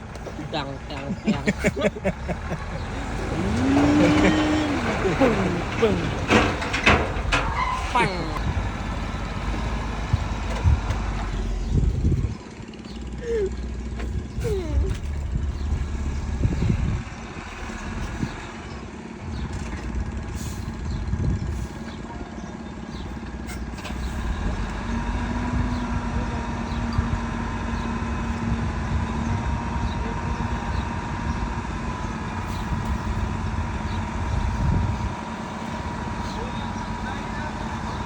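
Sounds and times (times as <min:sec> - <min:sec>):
diesel engines rumbling: 0:00.0 - 0:38.0
scattered knocks: 0:03.5 - 0:08.7.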